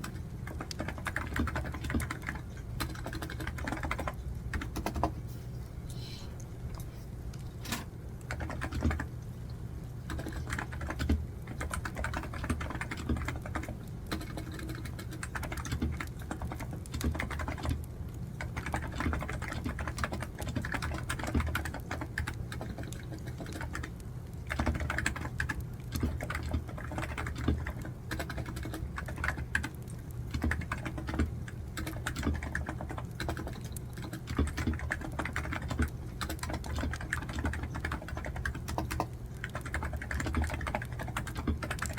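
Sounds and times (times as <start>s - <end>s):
computer keyboard typing: 0.0s - 5.2s, 7.6s - 9.2s, 10.0s - 41.9s.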